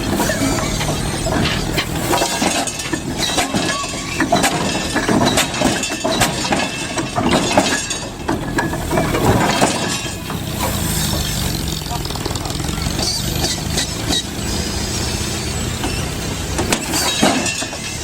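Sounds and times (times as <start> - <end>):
steam engine exhaust beats: 10.1 - 18.0.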